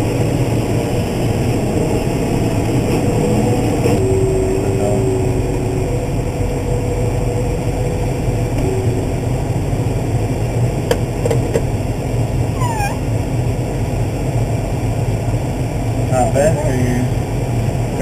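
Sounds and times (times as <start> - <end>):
tractor engine running: 0.0 - 18.0
short falling squeak: 12.6 - 13.0.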